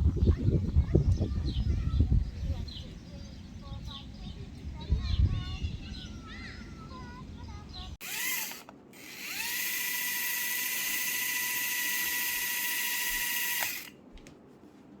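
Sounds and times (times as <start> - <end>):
gear noise: 8.0 - 13.9
toy helicopter motor whining: 8.0 - 13.9.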